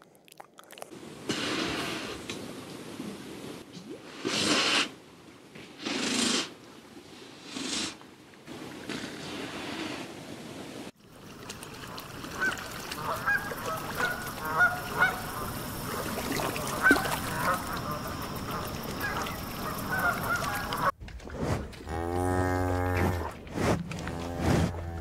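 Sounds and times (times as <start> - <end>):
outdoor background noise: 0.0 - 25.0
swans honking: 11.8 - 21.0
cow mooing: 21.8 - 23.3.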